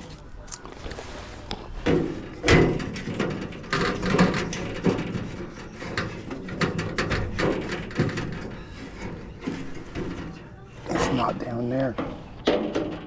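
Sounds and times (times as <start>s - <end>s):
knocks clicks and scrapes of tools: 0.0s - 13.0s.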